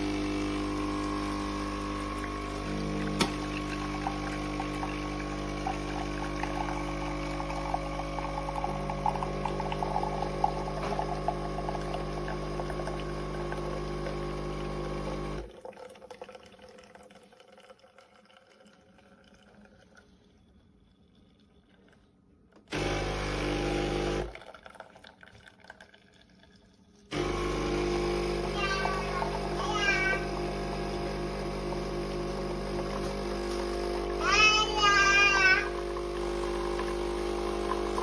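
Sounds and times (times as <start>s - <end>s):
espresso machine pump humming: 0.0s - 15.5s, 22.7s - 24.5s, 27.1s - 38.0s
liquid pouring: 0.0s - 38.0s.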